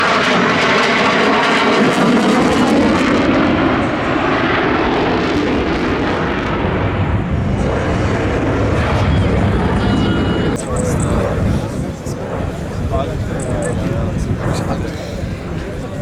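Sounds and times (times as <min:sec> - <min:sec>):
helicopter flying past: 0:00.0 - 0:16.0.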